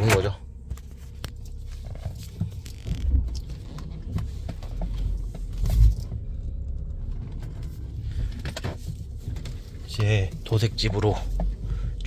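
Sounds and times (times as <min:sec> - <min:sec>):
car engine idling: 0:00.0 - 0:12.0
low thumps: 0:02.4 - 0:04.0.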